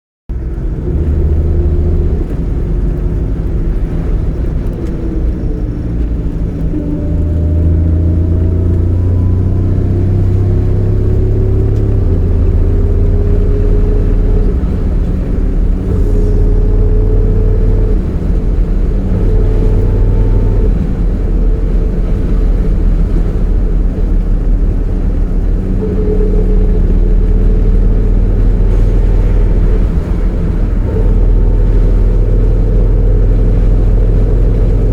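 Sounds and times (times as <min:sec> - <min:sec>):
car engine droning: 0:00.3 - 0:34.9
thin mechanical whine: 0:00.4 - 0:34.9.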